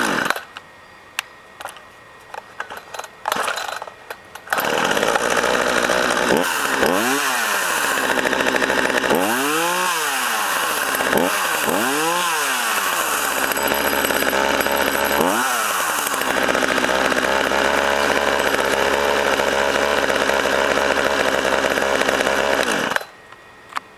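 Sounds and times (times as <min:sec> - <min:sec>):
chainsaw engine revving and idling: 0:00.0 - 0:00.4, 0:04.5 - 0:23.1.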